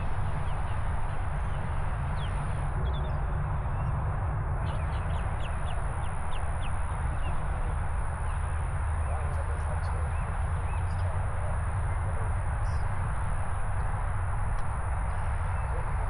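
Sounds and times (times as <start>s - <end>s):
bird chirping: 4.6s - 7.4s.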